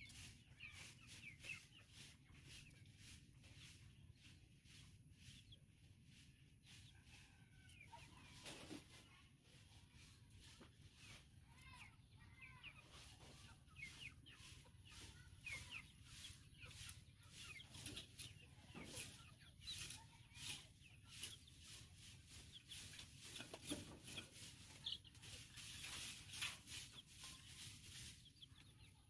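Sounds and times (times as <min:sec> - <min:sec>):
bird chicks peeping: 0:00.0 - 0:29.0.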